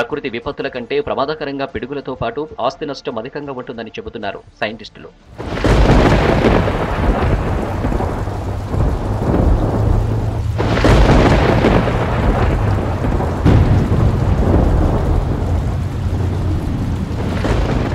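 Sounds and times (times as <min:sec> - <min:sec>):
sharp thunderclaps: 0:05.3 - 0:17.9
steady rain: 0:05.3 - 0:17.9
thunder rumbling: 0:05.3 - 0:17.9.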